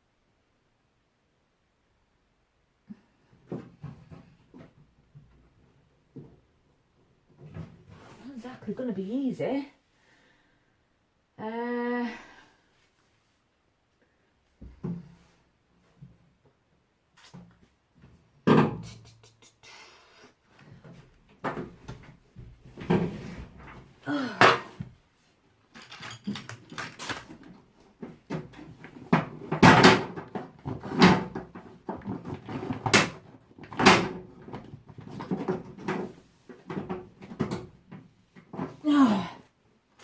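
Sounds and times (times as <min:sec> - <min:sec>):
knocks and clunks on washing machine: 0:18.4 - 0:18.8, 0:28.1 - 0:38.7.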